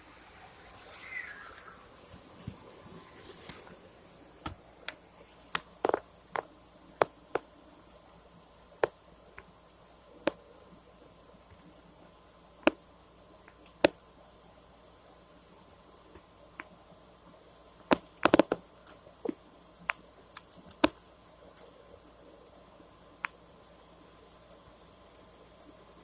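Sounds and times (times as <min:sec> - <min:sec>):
sharp irregular clicks and taps: 0:13.4 - 0:14.1, 0:17.9 - 0:21.0, 0:23.2 - 0:23.4.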